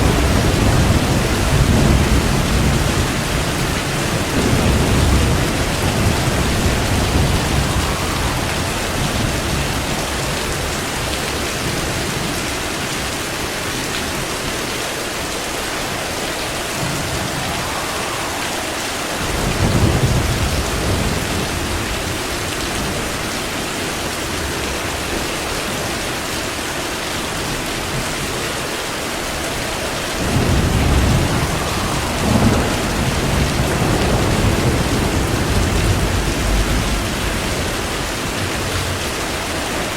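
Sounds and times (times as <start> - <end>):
thunder crack: 0.0 - 12.0, 15.8 - 23.2, 29.4 - 39.9
thunder rumbling: 0.0 - 12.7, 14.0 - 25.2, 29.1 - 39.9
heavy rain: 0.0 - 39.9.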